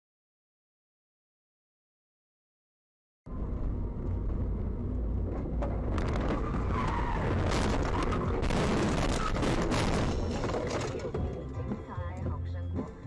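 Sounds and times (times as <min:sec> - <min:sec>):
car engine and road noise: 0:03.3 - 0:13.0.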